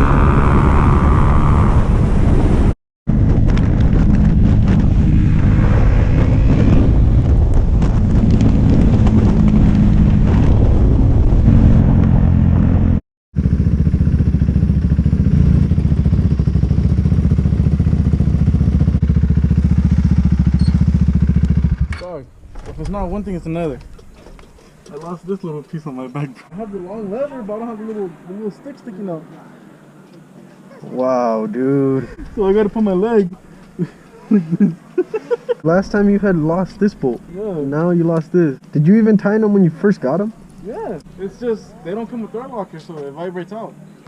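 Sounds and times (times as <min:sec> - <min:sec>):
wind rush: 0:00.0 - 0:13.0
motorcycle engine revving: 0:00.0 - 0:22.0.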